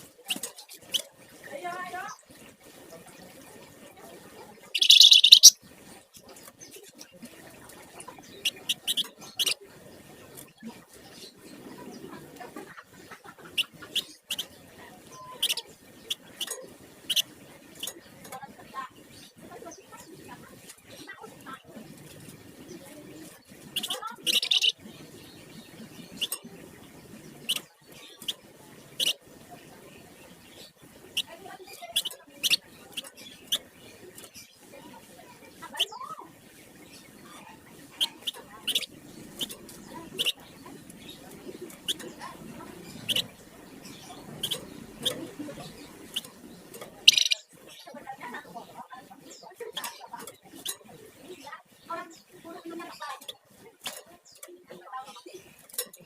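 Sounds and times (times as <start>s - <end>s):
low background noise: 0.0s - 56.0s
songbird singing: 0.0s - 56.0s
bird chirps: 4.6s - 5.6s, 8.2s - 9.6s, 13.4s - 18.2s, 22.6s - 29.3s, 35.6s - 48.4s
bird trilling: 4.8s - 5.6s, 15.2s - 17.9s, 23.8s - 24.8s, 42.9s - 45.2s, 47.0s - 47.5s
short sharp bird chirps: 4.8s - 5.6s.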